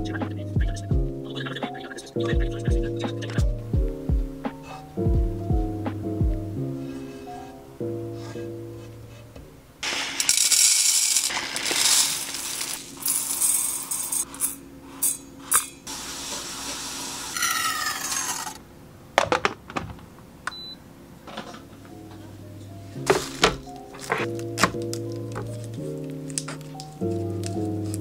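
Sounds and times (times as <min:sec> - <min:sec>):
rice pouring into steel bowl: 0:09.8 - 0:14.6
rice rattling as stirred: 0:09.8 - 0:14.6.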